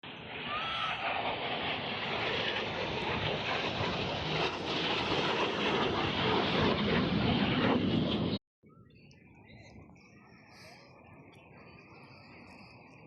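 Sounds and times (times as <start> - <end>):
aircraft engine roar: 0.0 - 8.4.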